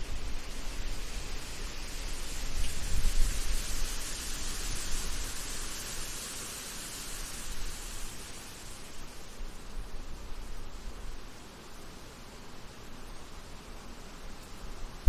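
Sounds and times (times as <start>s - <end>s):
wind gusts on microphone: 0.0s - 8.3s
wind through trees: 0.0s - 15.0s.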